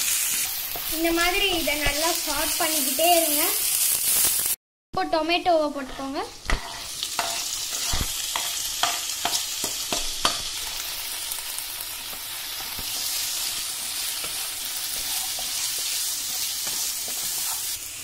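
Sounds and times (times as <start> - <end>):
tomatoes sizzling in oil: 0.0 - 18.0.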